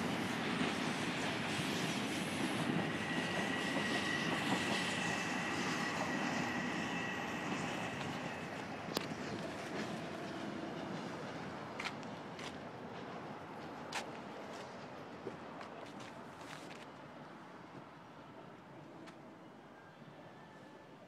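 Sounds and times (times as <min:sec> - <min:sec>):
high steady squeal: 0:00.0 - 0:11.4
electric train running: 0:00.0 - 0:12.5.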